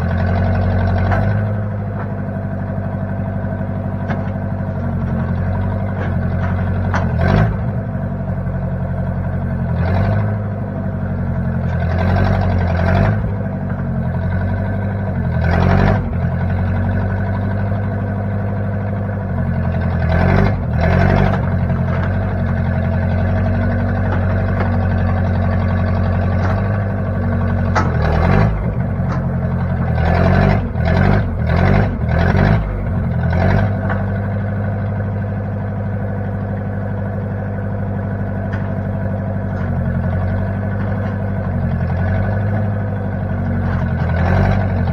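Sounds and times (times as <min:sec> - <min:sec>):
backhoe engine running: 0:00.0 - 0:44.9.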